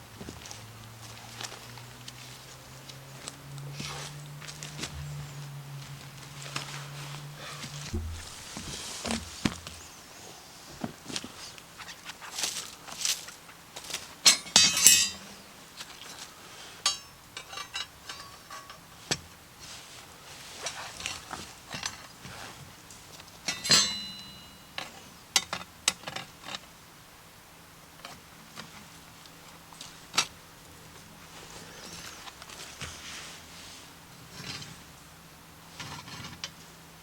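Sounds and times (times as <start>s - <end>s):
cookware and utensils clinking: 14.2s - 15.4s, 16.8s - 18.9s, 23.4s - 25.0s.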